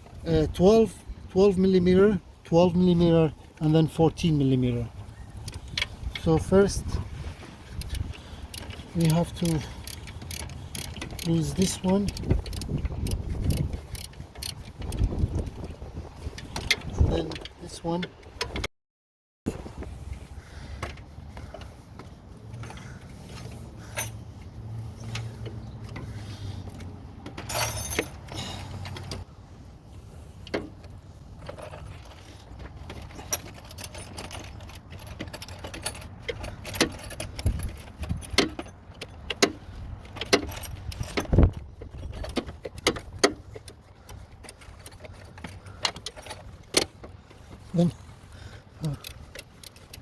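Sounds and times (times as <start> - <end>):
wrench clinking on metal: 7.7 - 15.1, 27.4 - 29.2, 33.0 - 46.9, 48.8 - 50.0.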